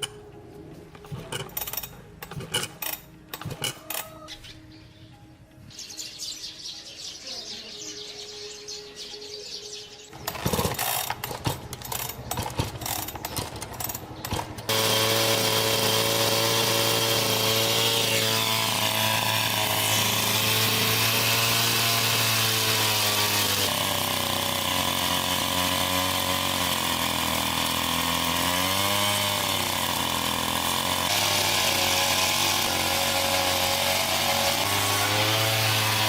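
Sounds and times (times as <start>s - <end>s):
chainsaw engine running: 1.0s - 4.0s, 10.2s - 36.0s.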